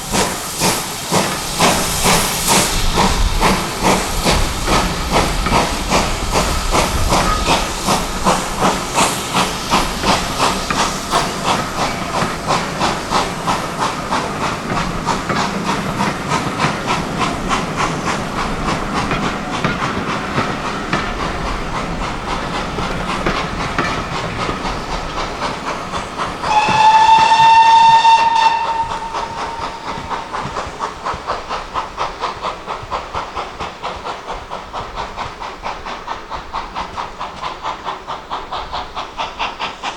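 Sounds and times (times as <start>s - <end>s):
hissing steam: 0.0s - 39.9s
steam locomotive exhaust beating: 0.0s - 39.9s
locomotive whistle blast: 26.4s - 30.6s.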